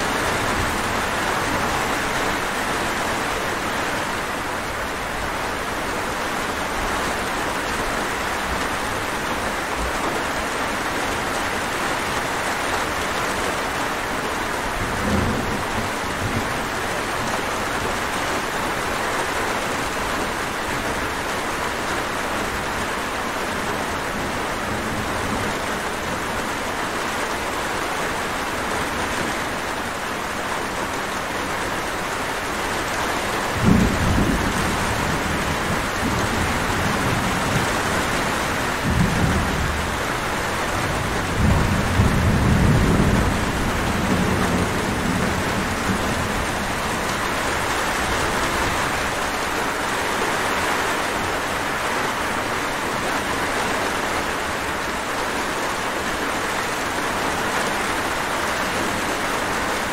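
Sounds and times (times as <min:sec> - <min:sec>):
heavy rain falling: 0:00.0 - 0:59.9
distant thunder rumbling: 0:33.5 - 0:49.4.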